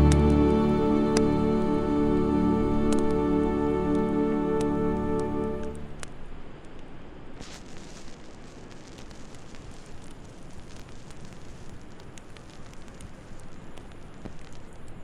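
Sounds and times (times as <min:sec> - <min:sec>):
wood fire crackling: 0:07.4 - 0:15.0.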